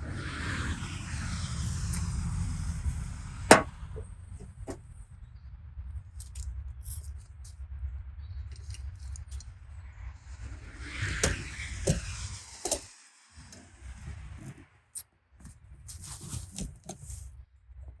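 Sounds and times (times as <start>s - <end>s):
low rumble: 0.0s - 14.8s
sharp metallic clank: 3.5s - 4.1s.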